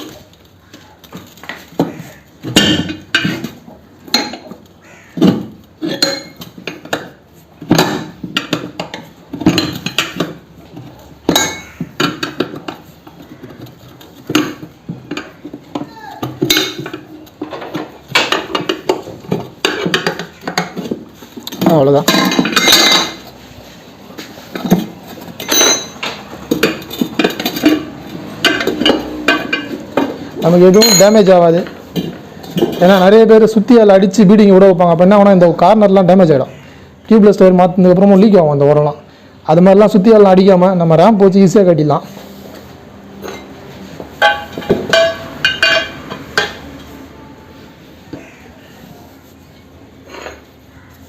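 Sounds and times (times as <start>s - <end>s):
metal tools clinking on wheel rim: 5.6s - 23.4s, 24.4s - 33.2s, 43.2s - 47.1s.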